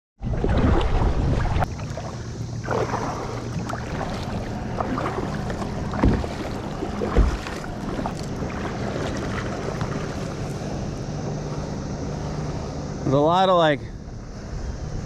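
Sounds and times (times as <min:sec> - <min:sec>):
water washing: 0:00.3 - 0:13.3
knocks on kayak hull: 0:04.8 - 0:07.6.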